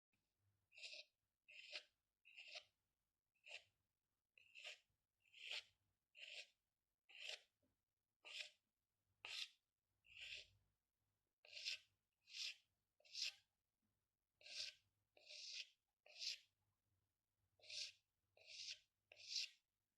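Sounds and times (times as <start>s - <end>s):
pen scratching on paper: 0.7s - 2.8s, 3.4s - 3.8s, 4.4s - 7.6s, 8.2s - 10.6s, 11.4s - 13.5s, 14.3s - 16.5s, 17.6s - 19.7s.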